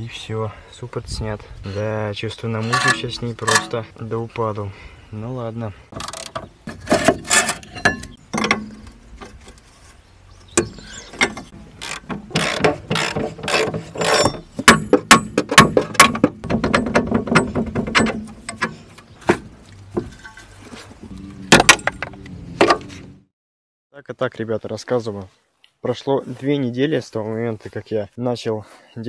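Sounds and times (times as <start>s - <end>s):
metal tools clanking: 2.5s - 3.9s, 5.9s - 9.6s, 10.4s - 19.2s, 20.0s - 20.7s, 21.5s - 22.9s.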